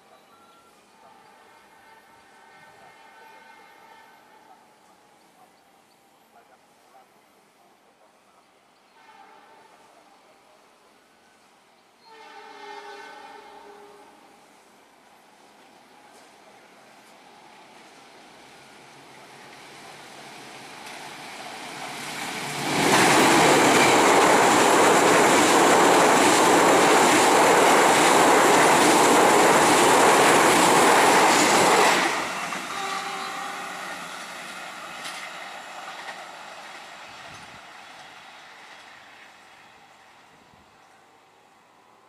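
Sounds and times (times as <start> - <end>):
train wheels on steel bridge: 16.1 - 39.6.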